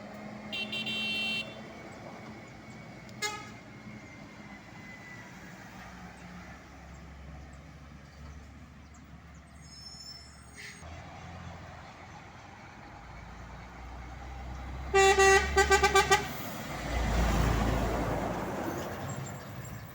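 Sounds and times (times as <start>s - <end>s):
road traffic: 0.0s - 19.9s
vehicle horn blast: 0.5s - 1.7s, 3.2s - 3.6s, 14.9s - 16.4s.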